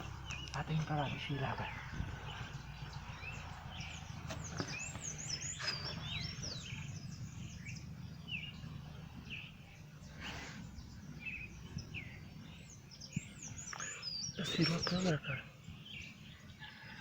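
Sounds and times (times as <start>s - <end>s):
steady low rumble: 0.0s - 13.5s
birds chirping: 0.0s - 17.0s.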